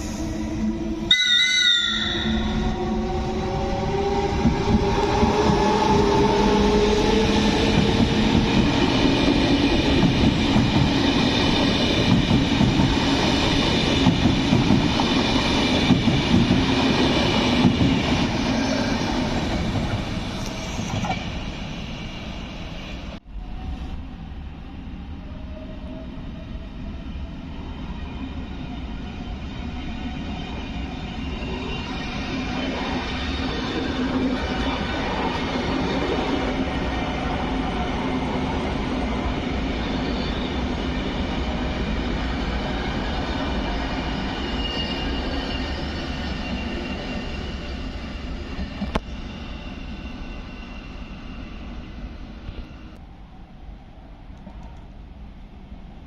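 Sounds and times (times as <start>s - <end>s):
electric train on steel rails: 0.0s - 56.0s
train with faint rising whine: 0.0s - 56.0s.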